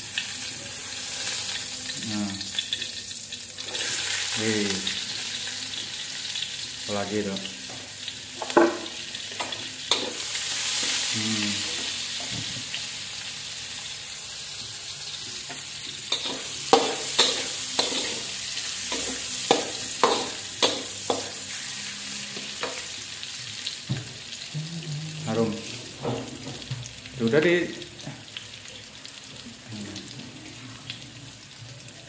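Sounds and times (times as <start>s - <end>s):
shallots sizzling in hot oil: 0.0s - 24.6s, 25.2s - 32.0s
metal spatula scraping a pan: 16.1s - 21.4s.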